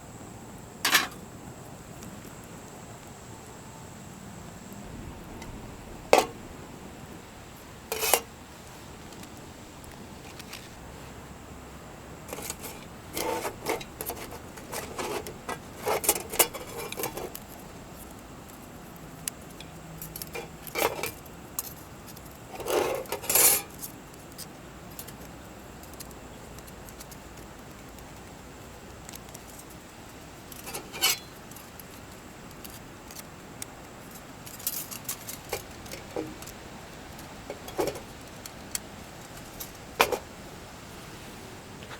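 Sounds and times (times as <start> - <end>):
metal cookware clinking and scraping: 0.8 - 1.2, 7.9 - 8.3, 22.6 - 23.7, 30.7 - 31.3, 37.5 - 38.1.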